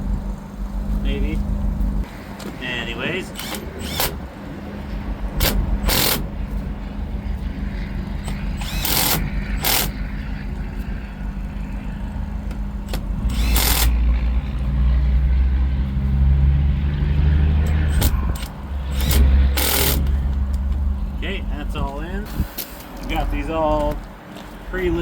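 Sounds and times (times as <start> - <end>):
deep rumble: 0.0 - 2.2, 3.4 - 22.5
low mechanical hum: 0.0 - 25.0.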